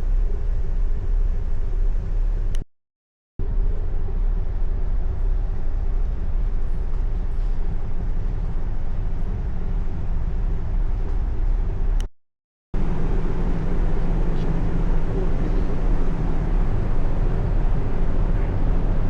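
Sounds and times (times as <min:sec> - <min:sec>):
constant hum: 0:00.0 - 0:02.6, 0:03.4 - 0:12.1, 0:12.8 - 0:19.0
large engine rumble: 0:12.8 - 0:19.0.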